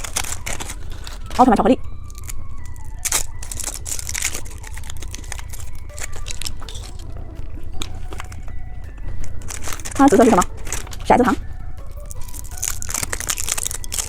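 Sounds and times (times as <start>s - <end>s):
plastic wrapper crinkling: 0.0s - 14.0s.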